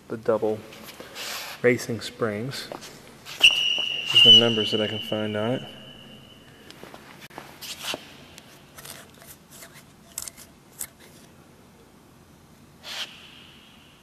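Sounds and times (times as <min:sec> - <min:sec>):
parts clicking and rustling: 0:08.5 - 0:11.3.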